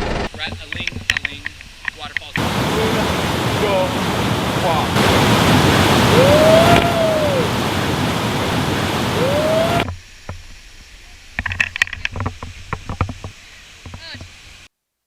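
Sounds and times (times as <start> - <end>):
waterfall rushing: 2.4 - 9.9
rising and falling tone: 5.0 - 9.9.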